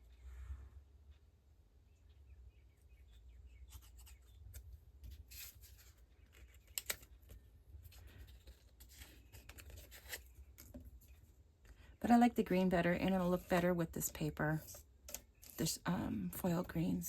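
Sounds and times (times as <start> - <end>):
paper rustling and scraping: 3.7 - 11.2.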